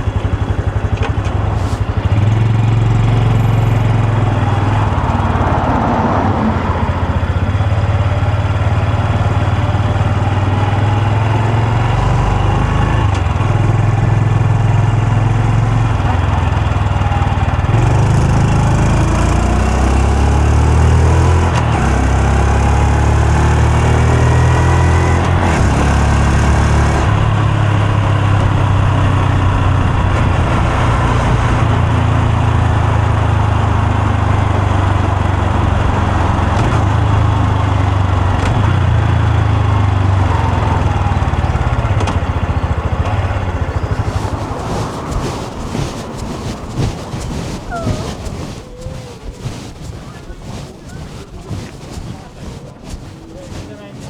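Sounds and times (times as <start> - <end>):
motorcycle engine accelerating: 40.1 - 54.0.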